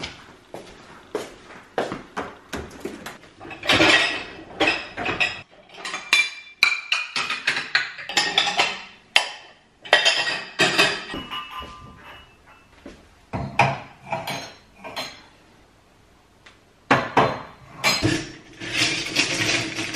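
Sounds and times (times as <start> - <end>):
dishes and cutlery clattering: 3.4 - 12.7, 13.3 - 15.3, 17.0 - 19.9.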